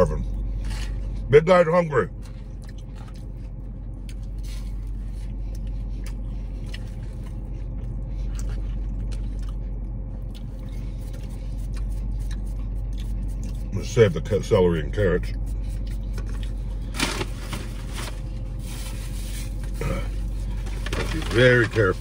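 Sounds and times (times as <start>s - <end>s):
low hum inside a car: 0.0s - 22.0s
person chewing crunchy food: 2.1s - 13.8s, 15.3s - 16.9s.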